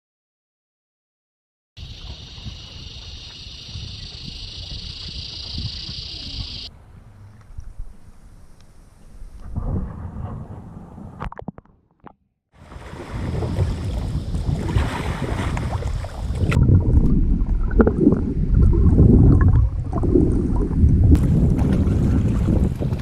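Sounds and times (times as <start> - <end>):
water sounds from kayak: 1.8 - 6.7, 12.6 - 23.0
wind rumbling on microphone: 1.8 - 11.6, 12.6 - 23.0.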